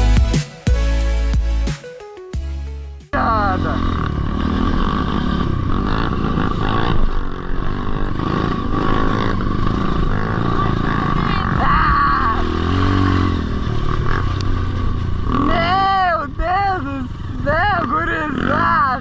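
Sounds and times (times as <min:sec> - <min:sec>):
engine revving: 0:02.7 - 0:16.0
motorbike engines running: 0:03.1 - 0:19.0.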